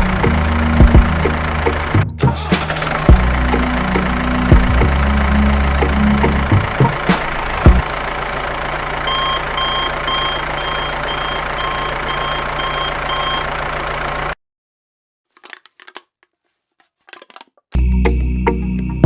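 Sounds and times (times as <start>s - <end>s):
motor hum: 0.0s - 14.4s
reversing alarm beeping: 9.0s - 13.6s.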